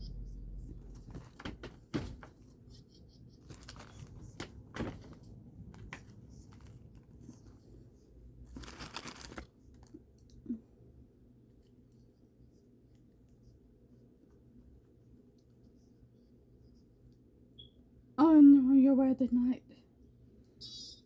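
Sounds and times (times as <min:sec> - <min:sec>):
food packaging crinkling: 0:03.4 - 0:07.6, 0:08.4 - 0:10.0.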